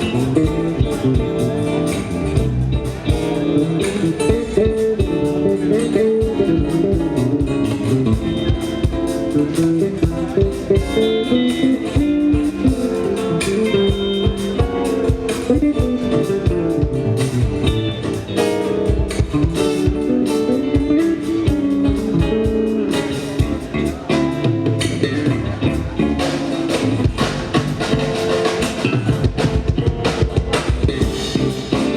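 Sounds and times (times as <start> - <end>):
electric guitar: 0.0 - 31.9
live band playing: 0.0 - 31.9
steady drum beat: 0.0 - 31.9.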